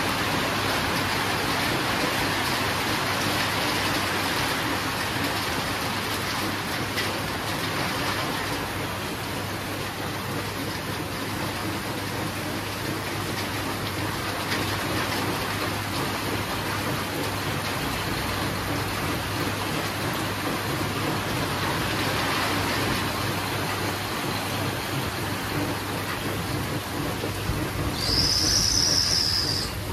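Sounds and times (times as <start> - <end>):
steady rain falling: 0.0 - 29.9.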